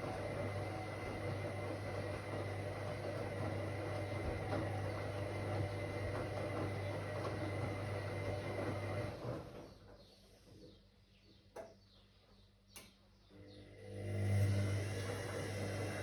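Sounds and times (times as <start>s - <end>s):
washing machine humming: 0.0s - 10.5s, 13.4s - 16.0s.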